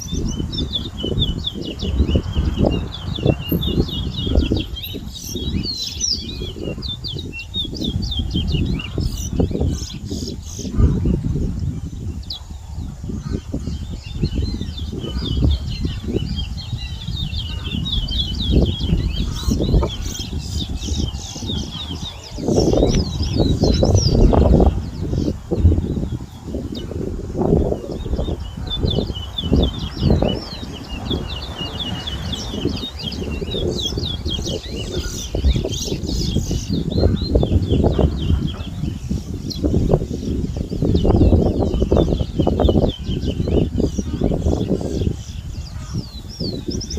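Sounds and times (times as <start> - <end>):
bird twittering song: 0.0 - 46.9.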